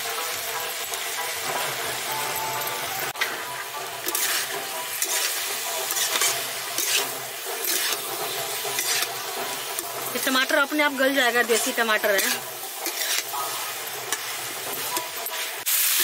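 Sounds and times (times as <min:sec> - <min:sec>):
masala sizzling in a pan: 0:00.0 - 0:16.0
metal ladle stirring and scraping: 0:03.9 - 0:15.8.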